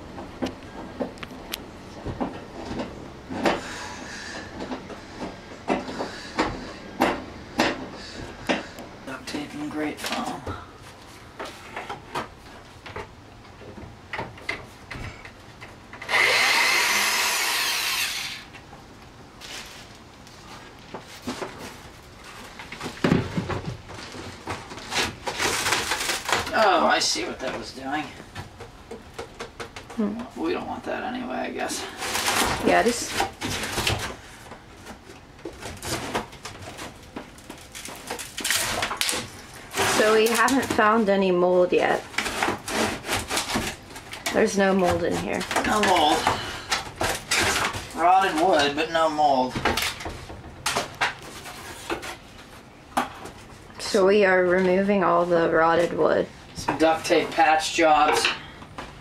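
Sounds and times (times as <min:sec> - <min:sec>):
wood panelling being pried out: 0:13.8 - 0:18.6, 0:21.0 - 0:30.0, 0:31.7 - 0:53.5
power tool cutting wood: 0:16.0 - 0:18.5
knocks and clicks of demolition: 0:22.4 - 0:26.7, 0:31.9 - 0:41.0, 0:42.0 - 0:48.8, 0:49.5 - 0:52.2.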